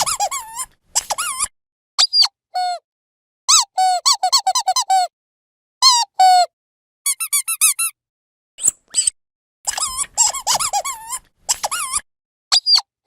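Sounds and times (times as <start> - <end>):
squeaky dog toy squeaks: 0.0 - 2.8, 3.5 - 5.1, 5.8 - 6.5, 7.1 - 8.0, 8.6 - 12.9.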